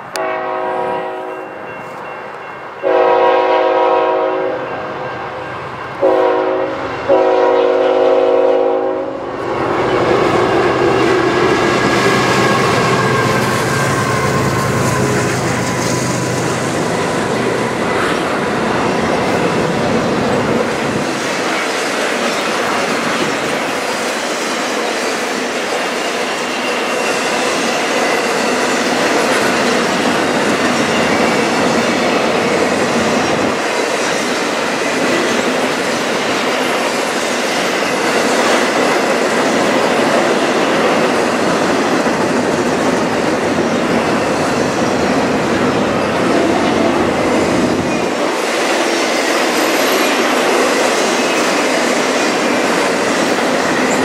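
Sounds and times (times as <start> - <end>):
locomotive horn blasts: 0.1 - 1.6, 2.8 - 4.7, 6.0 - 9.2
locomotives passing: 4.6 - 54.0.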